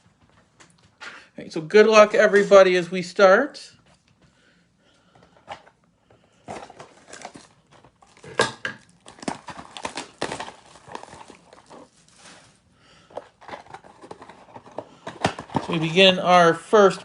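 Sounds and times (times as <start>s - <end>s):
packaging crinkling and tearing: 6.4s - 16.1s.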